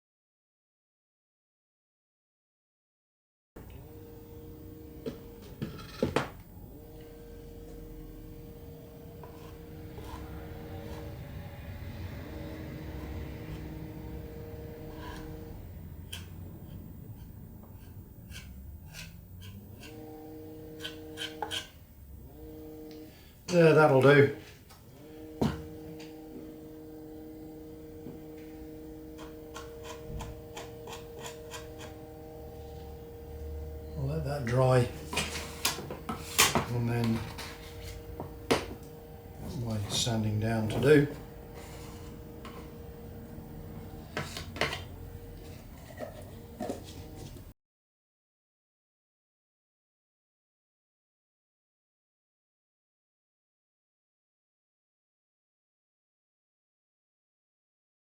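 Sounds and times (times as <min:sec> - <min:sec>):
faint steady hum: 0:03.6 - 0:47.5.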